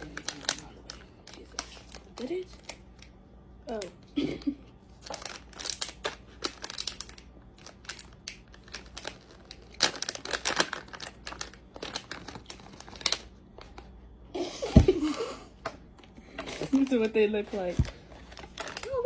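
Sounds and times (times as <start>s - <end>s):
plastic wrapper crinkling: 0.0s - 3.9s, 4.9s - 13.9s, 16.7s - 19.0s.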